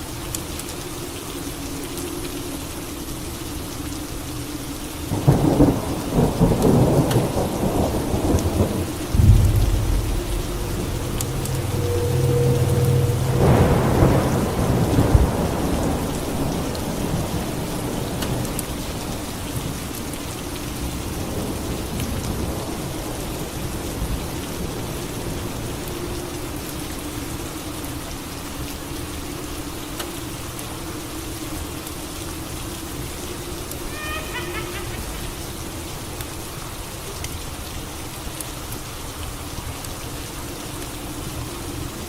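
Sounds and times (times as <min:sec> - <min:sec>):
heavy rain: 0:00.0 - 0:42.0
thunderclap rumbling: 0:05.2 - 0:18.5.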